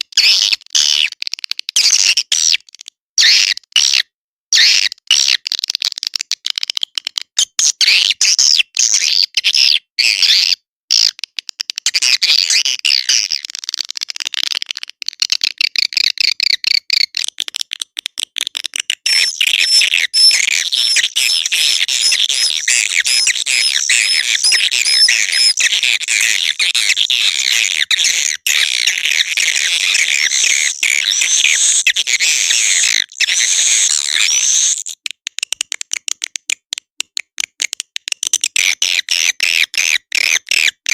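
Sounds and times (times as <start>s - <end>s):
swiftlets twittering and chirping: 19.0s - 35.0s
rapid clicks: 28.5s - 38.6s.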